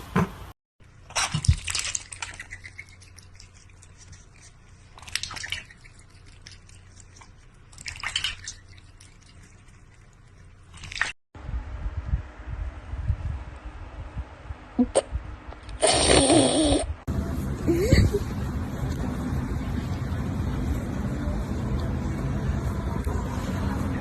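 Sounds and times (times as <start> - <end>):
water splashing: 1.1 - 11.2.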